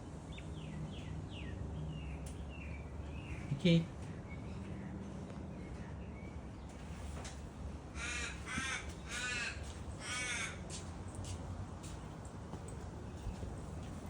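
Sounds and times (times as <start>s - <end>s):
crow cawing: 7.9s - 10.8s.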